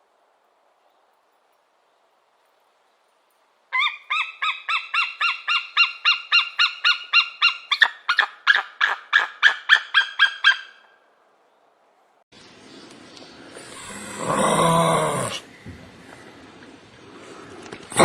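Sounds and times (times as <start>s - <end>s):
bird calling: 3.7s - 11.0s.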